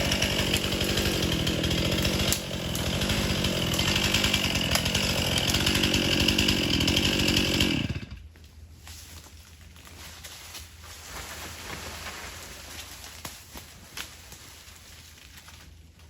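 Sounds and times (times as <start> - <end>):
chainsaw cutting wood: 0.0 - 8.3.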